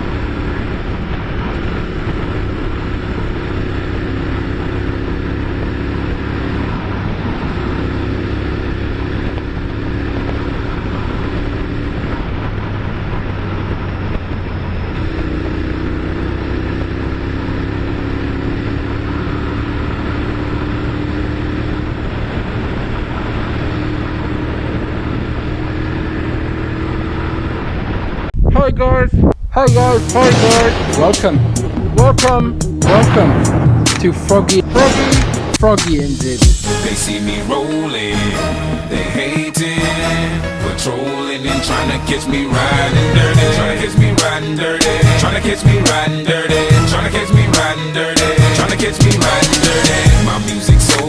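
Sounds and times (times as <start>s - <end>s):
wind noise: 0.0s - 3.2s, 9.1s - 15.8s, 27.0s - 36.8s
motorcycle engine changing gear: 29.8s - 40.0s, 46.7s - 51.0s.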